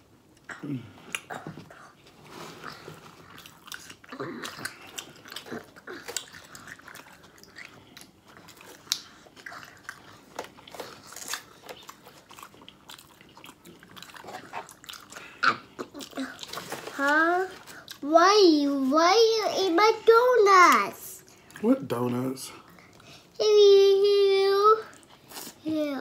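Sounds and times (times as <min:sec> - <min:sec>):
people chewing a pickle: 0:00.3 - 0:18.1
pickle crunches: 0:03.3 - 0:17.0.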